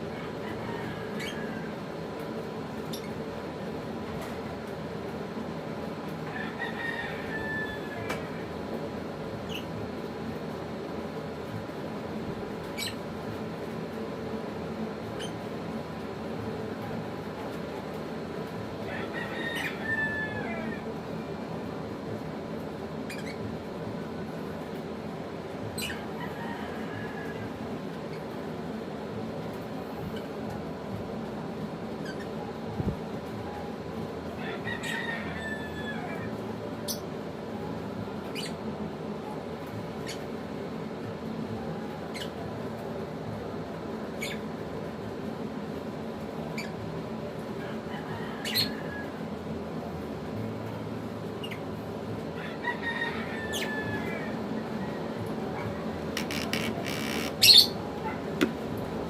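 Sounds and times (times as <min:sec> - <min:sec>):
steady background hum: 0:00.0 - 0:59.0
bird calling: 0:55.6 - 0:58.6
lovebird squeaky chirps: 0:56.2 - 0:57.8.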